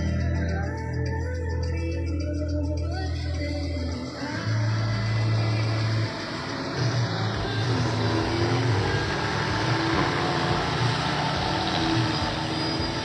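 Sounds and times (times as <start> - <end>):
car driving: 4.2 - 13.0.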